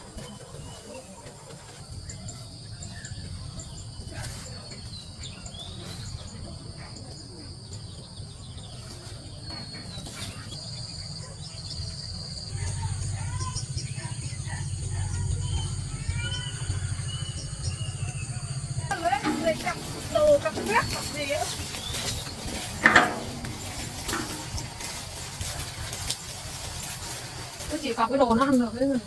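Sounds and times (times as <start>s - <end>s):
insects trilling: 10.3s - 29.0s.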